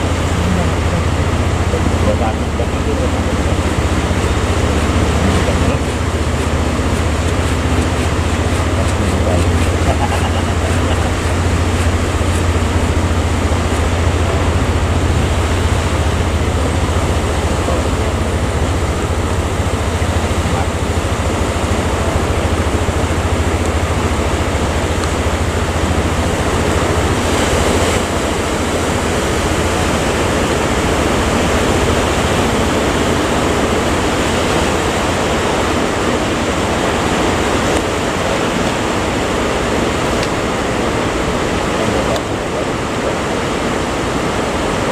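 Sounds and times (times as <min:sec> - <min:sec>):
low rumble: 0:00.0 - 0:34.4
sea waves: 0:00.0 - 0:44.9
wind: 0:00.0 - 0:44.9.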